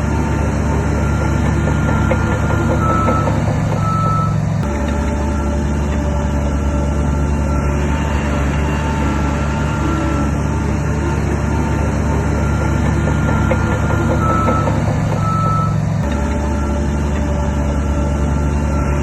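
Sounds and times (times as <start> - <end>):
diesel engine of heavy machinery: 0.0 - 19.0
reversing alarm beeping: 0.2 - 19.0.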